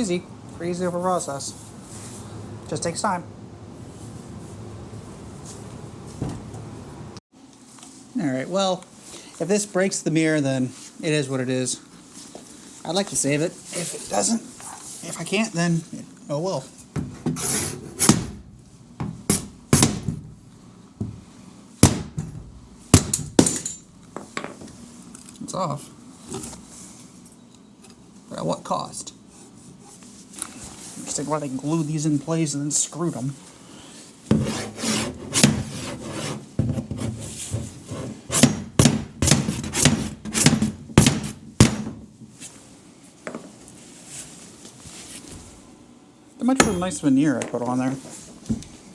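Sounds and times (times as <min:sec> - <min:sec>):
scraping and rubbing wood: 0:34.3 - 0:41.3
sharp knocks: 0:38.4 - 0:42.0.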